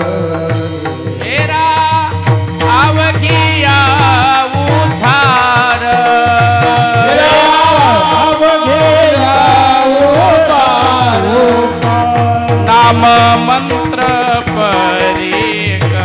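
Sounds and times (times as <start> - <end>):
devotional singing: 0.0 - 16.0
hand drum beat: 0.0 - 16.0
melodic accompaniment: 11.5 - 16.0.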